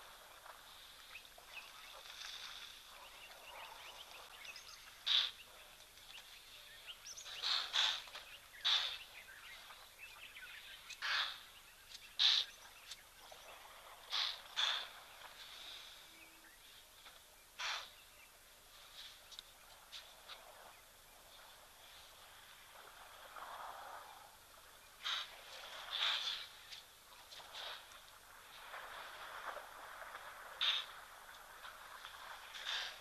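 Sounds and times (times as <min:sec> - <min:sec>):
bird calling: 0:07.1 - 0:13.0, 0:30.6 - 0:31.0.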